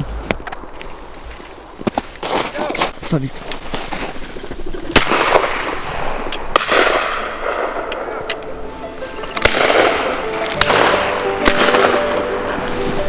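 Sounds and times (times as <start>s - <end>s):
shotgun shots echoing: 5.0s - 12.6s
background music with held notes: 7.8s - 13.0s.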